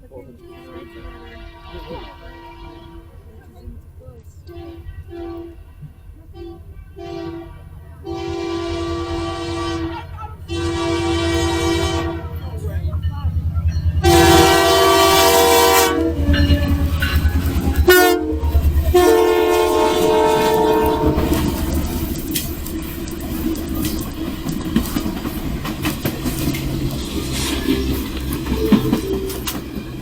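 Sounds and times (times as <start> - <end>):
passing train rumble: 0.0 - 30.0
locomotive air horn blasts: 0.4 - 3.4, 4.4 - 12.6, 14.0 - 24.1.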